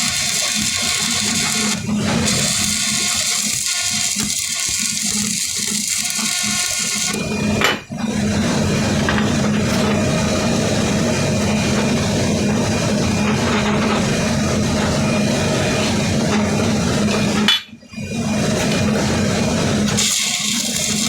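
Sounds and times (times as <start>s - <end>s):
arc welding crackling sizzle: 0.0s - 7.3s, 19.9s - 21.0s.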